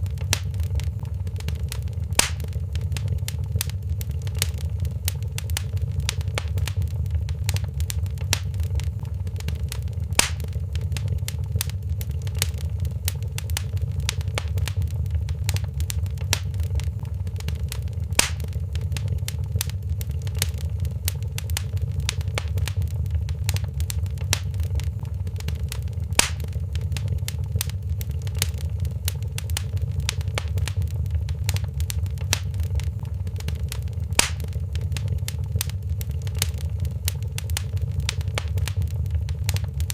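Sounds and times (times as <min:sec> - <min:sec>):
loud fire pops: 0:00.0 - 0:39.9
wood fire crackling: 0:00.0 - 0:39.9.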